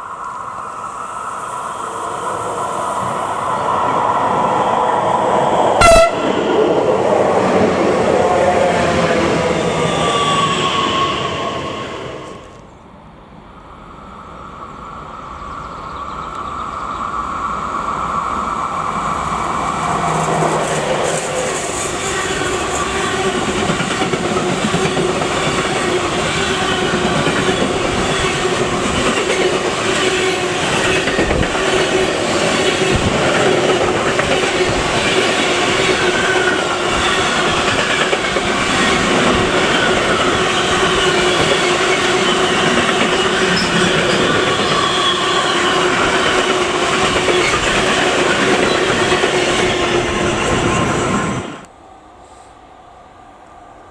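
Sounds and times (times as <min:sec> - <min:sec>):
train wheels on rails: 0:14.8 - 0:52.6.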